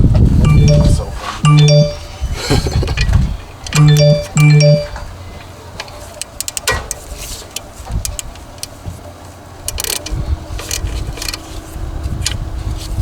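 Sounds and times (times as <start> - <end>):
faint steady tone: 0.5 - 2.0, 3.8 - 4.9.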